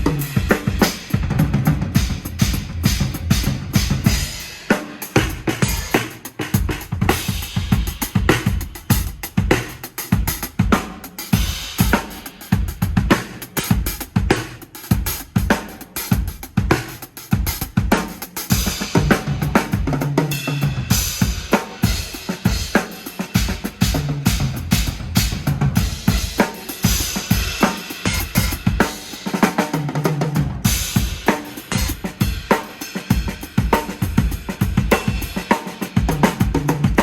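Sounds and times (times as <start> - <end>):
drum kit being played: 0.0 - 37.0
cymbals washing: 2.0 - 9.2, 25.8 - 29.5, 30.7 - 36.0.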